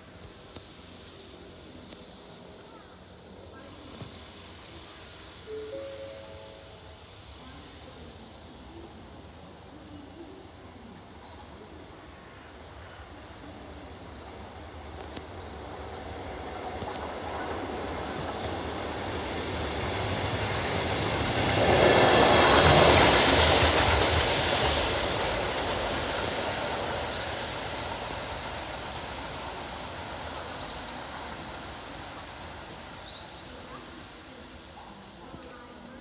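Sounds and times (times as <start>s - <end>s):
train rail and wheel noise: 0.0s - 36.0s.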